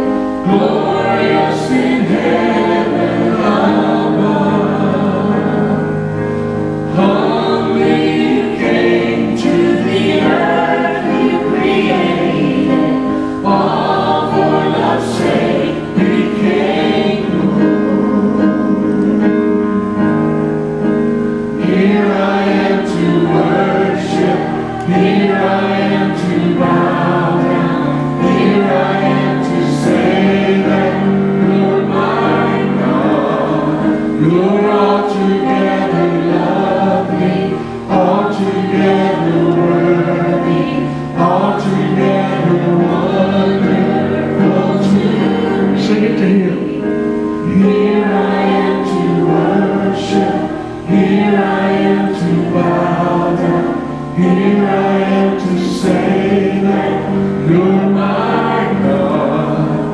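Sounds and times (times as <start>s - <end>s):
church choir singing: 0.0s - 59.9s.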